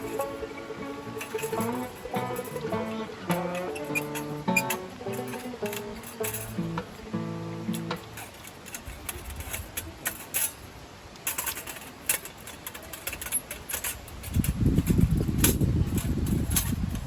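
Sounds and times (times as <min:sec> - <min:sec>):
guitar music: 0:00.0 - 0:08.4
campfire crackling: 0:00.0 - 0:14.8.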